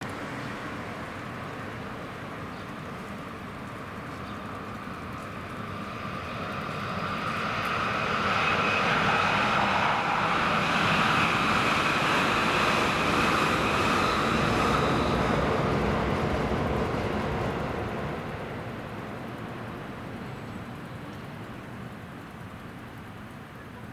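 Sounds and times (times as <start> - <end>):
train rumbling past: 4.7 - 21.9.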